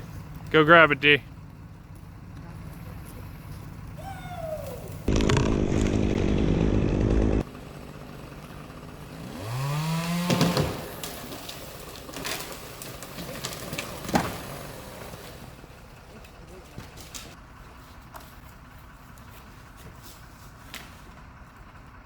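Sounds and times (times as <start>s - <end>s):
chainsaw running: 4.8s - 22.0s
motor revving: 4.9s - 7.8s, 8.4s - 11.6s.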